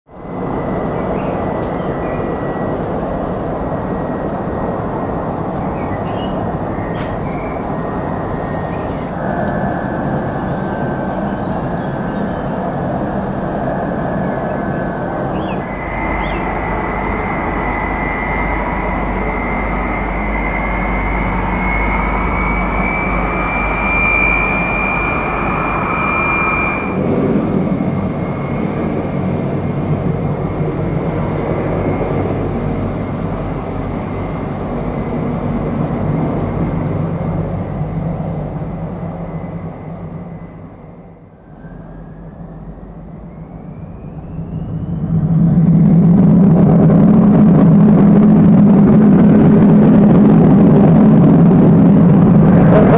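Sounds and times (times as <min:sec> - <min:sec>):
jet engine roar: 0:00.1 - 0:52.9
high jet whistle: 0:00.5 - 0:30.2.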